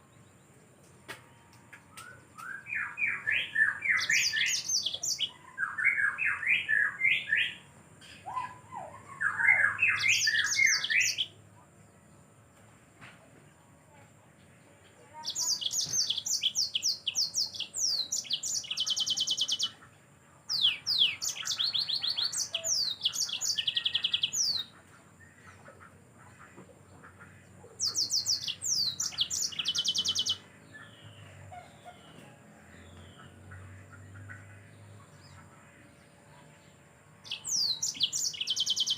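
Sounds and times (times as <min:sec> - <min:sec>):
canary singing whistles and trills: 0:01.9 - 0:11.4, 0:15.2 - 0:19.8, 0:20.5 - 0:24.7, 0:27.7 - 0:32.2, 0:37.2 - 0:38.9.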